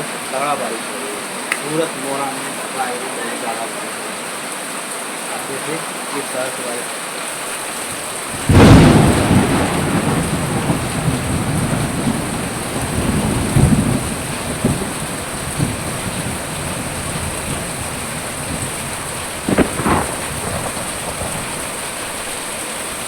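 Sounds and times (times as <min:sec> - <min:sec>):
heavy rain falling: 0:00.0 - 0:23.0
thunder rumbling: 0:08.0 - 0:23.0.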